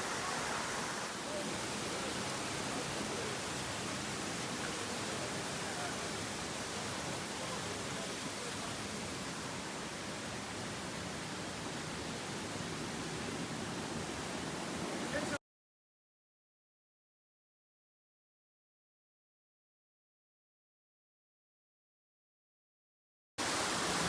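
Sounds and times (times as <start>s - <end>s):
waterfall rushing: 0.0s - 15.4s, 23.4s - 24.0s.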